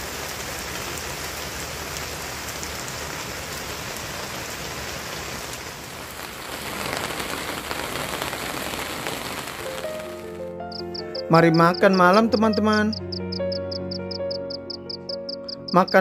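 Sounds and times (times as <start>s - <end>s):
food sizzling on a hot pan: 0.0s - 10.2s.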